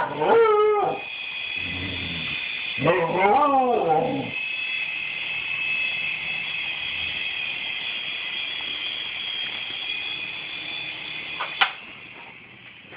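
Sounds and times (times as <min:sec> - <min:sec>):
toy helicopter motor whine: 0:00.0 - 0:12.2
sharp click: 0:11.4 - 0:11.8.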